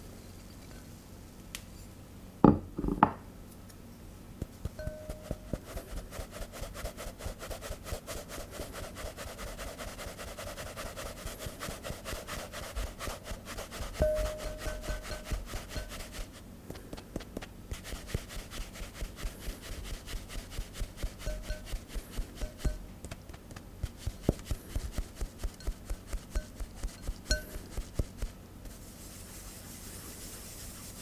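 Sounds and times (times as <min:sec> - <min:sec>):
knocks: 0:02.4 - 0:03.2
whisk scraping mixing bowl: 0:04.9 - 0:16.4, 0:17.8 - 0:22.8, 0:23.9 - 0:31.0.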